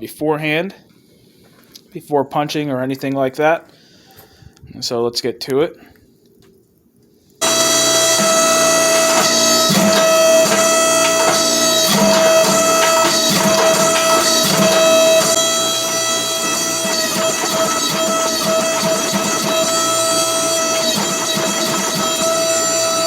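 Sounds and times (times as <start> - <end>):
bagpipe-like music: 7.4 - 23.0.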